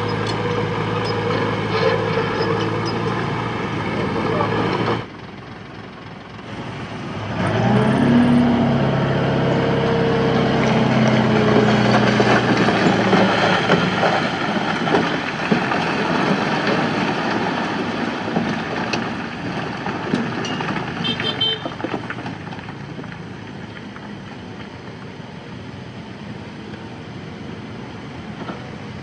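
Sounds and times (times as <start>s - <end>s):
diesel engine revving under load: 0.0s - 21.1s
dense rumbling with knocks: 10.0s - 24.8s.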